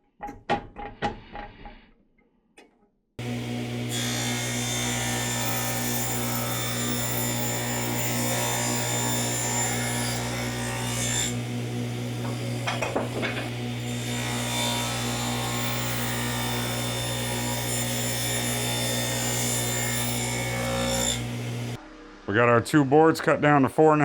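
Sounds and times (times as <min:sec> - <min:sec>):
power saw cutting boards: 0:03.2 - 0:21.8.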